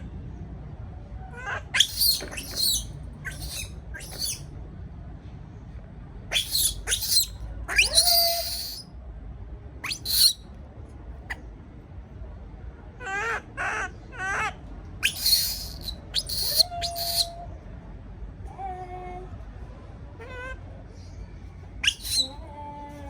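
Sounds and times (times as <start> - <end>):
baby monkey crying: 1.3 - 4.4, 6.3 - 8.8, 9.8 - 10.4, 13.0 - 17.4, 21.8 - 22.4.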